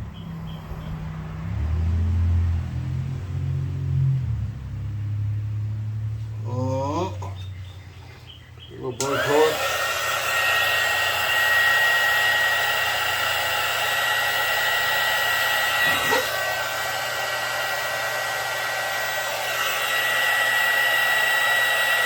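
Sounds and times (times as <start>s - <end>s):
blowtorch hissing and whistling: 9.0s - 22.0s.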